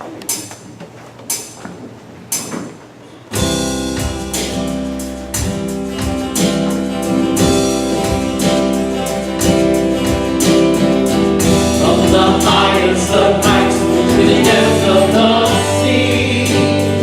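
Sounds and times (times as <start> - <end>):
steady drum beat: 0.2 - 17.0
band playing instrumental: 3.3 - 17.0
strummed guitar: 3.3 - 17.0.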